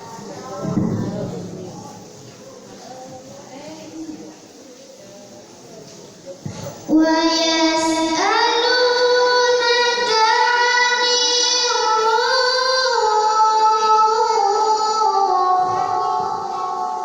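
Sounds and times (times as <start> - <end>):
girl reciting melodically: 6.5 - 17.0.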